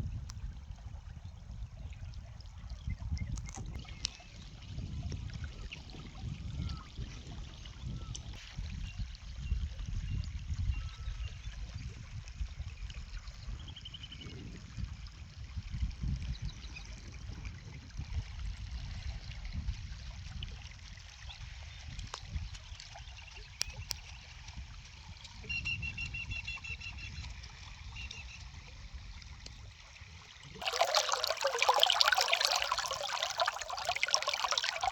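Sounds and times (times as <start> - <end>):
flowing water: 0.0 - 25.4, 28.5 - 34.9
rushing splashing water: 30.6 - 34.9.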